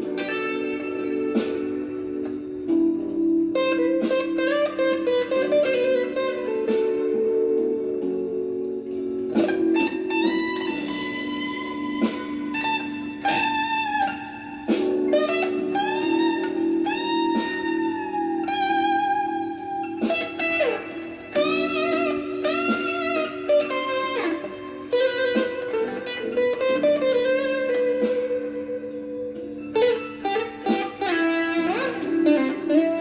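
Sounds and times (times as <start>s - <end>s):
electric guitar blues solo: 0.0s - 33.0s
sustained guitar notes: 9.4s - 33.0s.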